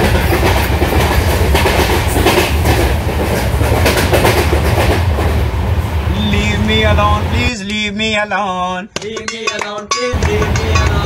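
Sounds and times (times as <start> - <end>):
wheels clacking over rail joints: 0.0 - 5.5, 9.0 - 11.0
train rumble from inside carriage: 0.0 - 8.3, 10.1 - 11.0.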